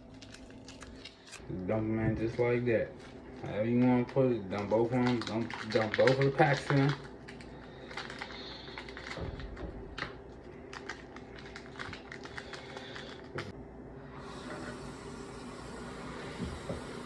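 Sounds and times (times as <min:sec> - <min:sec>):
seasoning packets crinkling: 0:00.0 - 0:01.4, 0:03.3 - 0:13.4.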